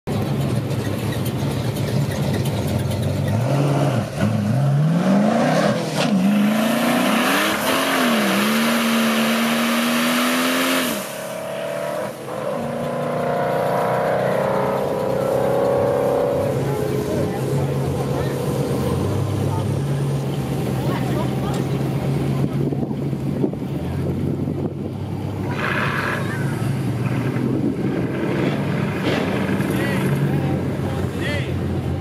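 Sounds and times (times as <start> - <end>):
car engine revving: 0.1 - 32.0
spinning tyres hissing: 25.4 - 31.0.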